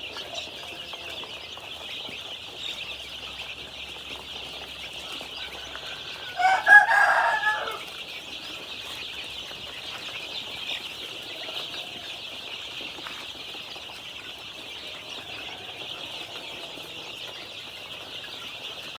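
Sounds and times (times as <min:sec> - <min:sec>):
chicks peeping: 0:00.0 - 0:18.9
chicken call: 0:05.4 - 0:07.9.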